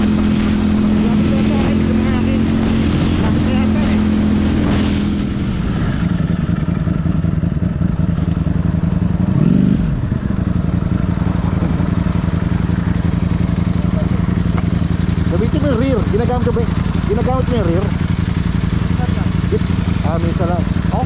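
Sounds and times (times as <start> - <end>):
motorcycle engine revving: 0.0 - 21.0
motorcycle engine running: 0.0 - 21.0.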